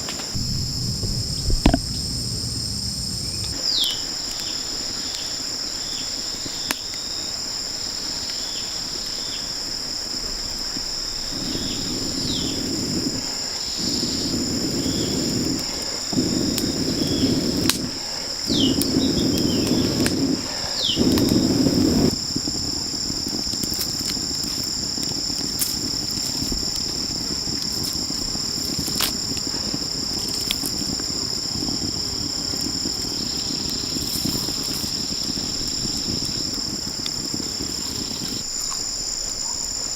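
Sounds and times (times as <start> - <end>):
loud rough noises: 0.0 - 4.0
insects chorus: 0.0 - 39.9.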